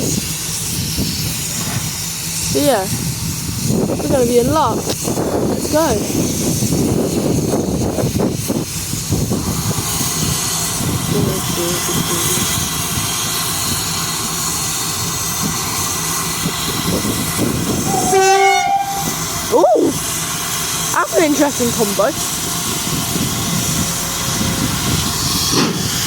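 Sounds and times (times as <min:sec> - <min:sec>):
train hissing and rumbling: 0:00.0 - 0:26.0
train whistle blast: 0:17.8 - 0:20.1.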